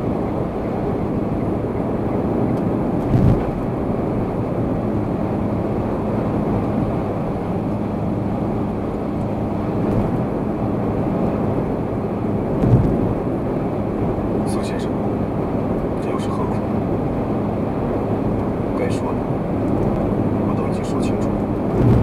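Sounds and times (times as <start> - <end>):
car road and engine noise: 0.0 - 22.0
brief low thump: 3.0 - 3.6, 12.6 - 13.0, 21.7 - 22.0.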